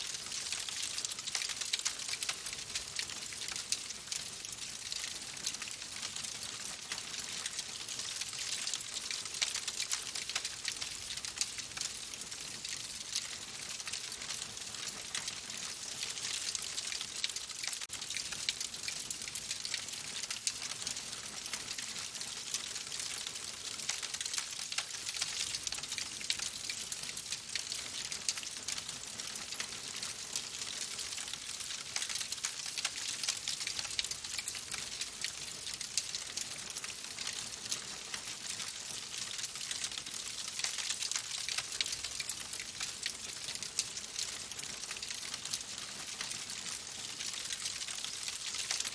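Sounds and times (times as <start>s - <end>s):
wood fire crackling: 0.1s - 12.0s.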